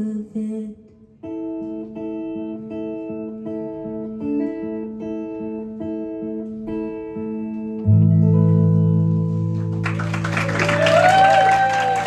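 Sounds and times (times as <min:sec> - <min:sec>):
acoustic guitar strumming: 0:01.0 - 0:10.3.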